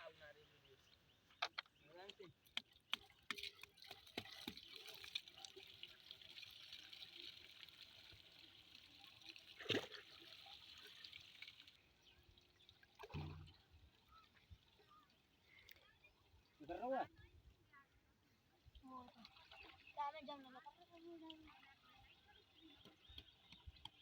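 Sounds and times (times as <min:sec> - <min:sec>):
flowing splashing water: 0:02.6 - 0:14.2.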